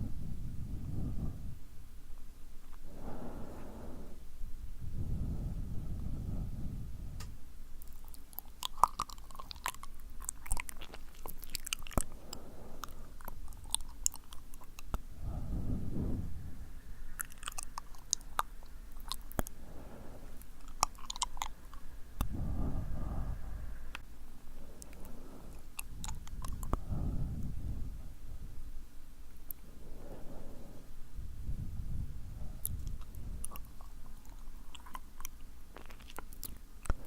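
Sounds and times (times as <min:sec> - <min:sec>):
soft breaths: 0:00.0 - 0:37.0
wet lip and tongue clicks: 0:07.2 - 0:15.0, 0:17.1 - 0:19.6, 0:20.4 - 0:22.5, 0:24.8 - 0:27.5, 0:32.6 - 0:37.0.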